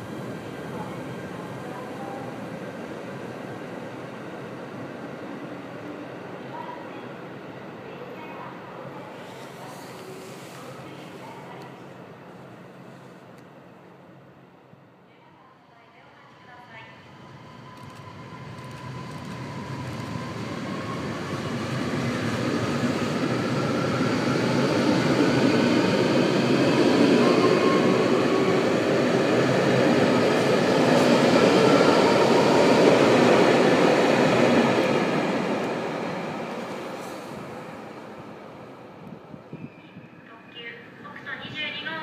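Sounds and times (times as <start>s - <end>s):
train rolling on rails: 16.1s - 40.0s.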